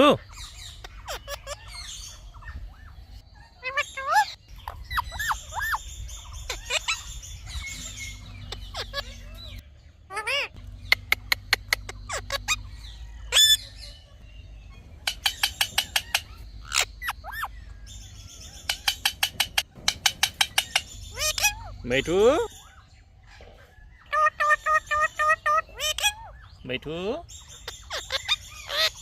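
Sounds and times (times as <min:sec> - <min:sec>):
parrot call notes: 0:00.2 - 0:22.8
parrot chirping: 0:00.2 - 0:29.0.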